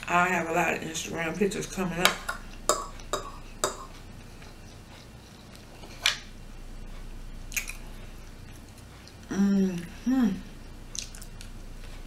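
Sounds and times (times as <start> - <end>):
crisp bites chewing: 10.9 - 11.5.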